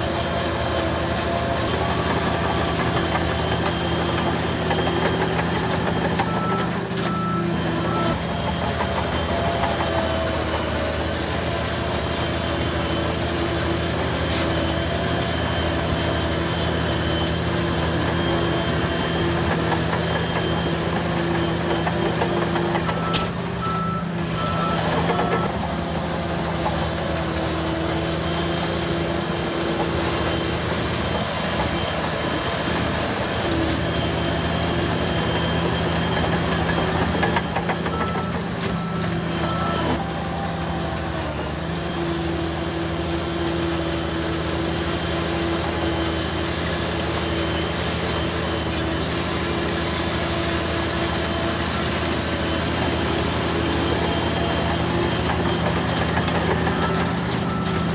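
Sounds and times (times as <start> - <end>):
bulldozer diesel engines running: 0.0 - 57.9
reverse alarm beeping: 2.2 - 8.2, 33.6 - 40.4.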